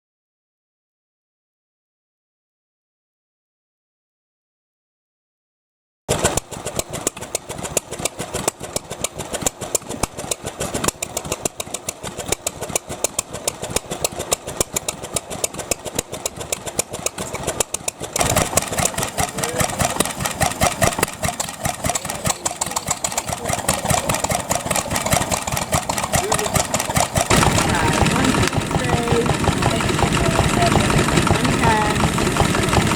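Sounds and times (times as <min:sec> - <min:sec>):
stationary engines running: 0:06.1 - 0:32.9.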